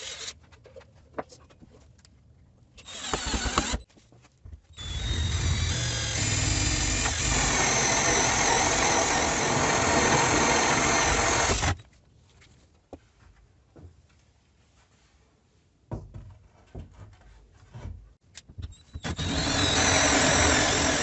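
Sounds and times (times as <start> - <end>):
handheld power tool running: 2.8 - 3.8, 4.8 - 11.8, 19.1 - 21.0.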